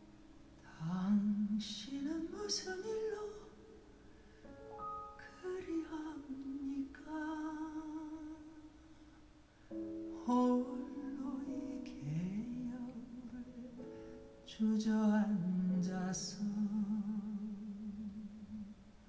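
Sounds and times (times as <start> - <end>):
soft instrumental accompaniment: 0.0 - 7.8, 9.6 - 16.6
voice singing long wordless notes: 0.1 - 4.1, 5.2 - 9.0, 10.1 - 19.0.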